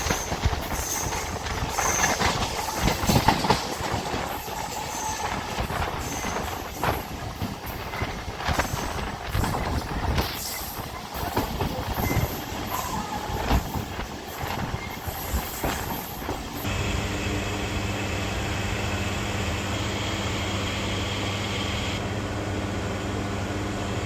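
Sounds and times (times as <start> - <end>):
train wheels clattering over rail joints: 0.0 - 16.6
train rumble: 0.0 - 17.1.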